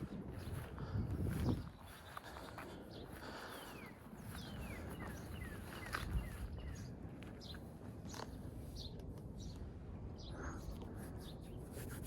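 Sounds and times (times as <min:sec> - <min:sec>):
birds whistling and chirping: 0:02.9 - 0:08.2.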